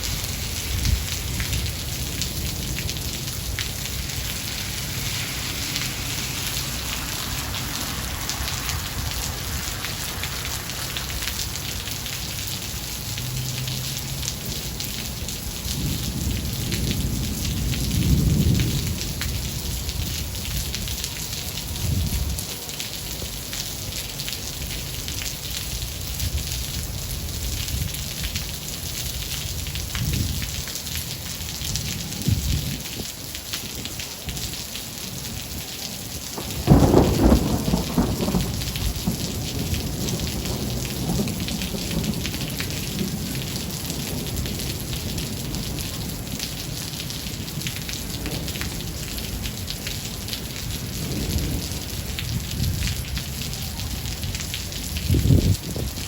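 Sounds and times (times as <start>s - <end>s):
low thunder rumbles: 0.0s - 13.8s, 14.4s - 22.5s, 31.5s - 33.1s, 36.3s - 56.0s
steady rain: 0.0s - 56.0s.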